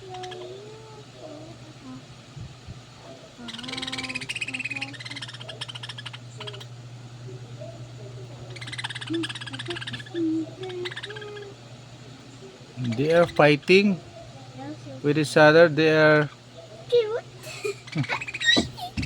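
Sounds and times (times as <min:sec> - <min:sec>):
steady low hum: 0:00.0 - 0:19.0
budgerigars chattering: 0:03.1 - 0:14.4, 0:15.1 - 0:16.9, 0:17.6 - 0:18.7.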